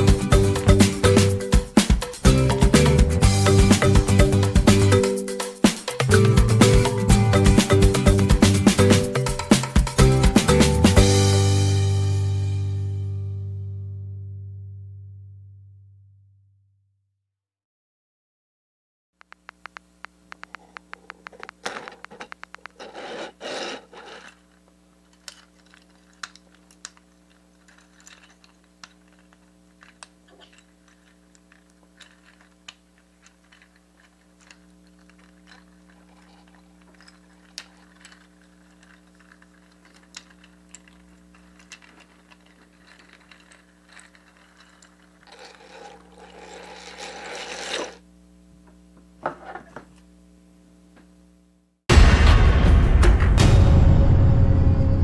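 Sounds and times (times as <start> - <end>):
scraping: 21.6 - 24.4, 42.0 - 48.0.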